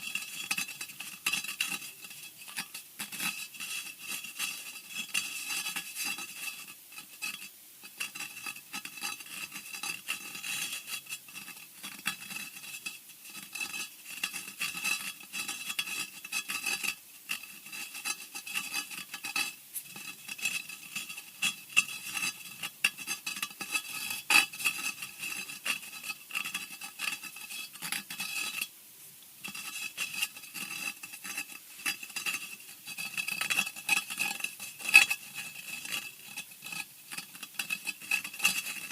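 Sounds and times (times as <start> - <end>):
harsh scratching and scraping: 0.0 - 7.4, 29.5 - 38.9.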